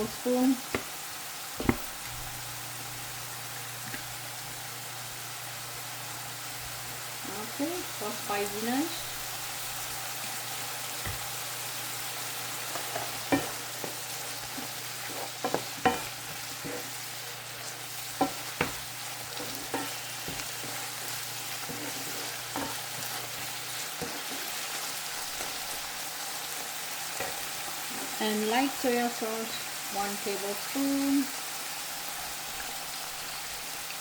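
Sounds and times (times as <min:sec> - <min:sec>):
mushrooms sizzling in a pan: 0:00.0 - 0:34.0.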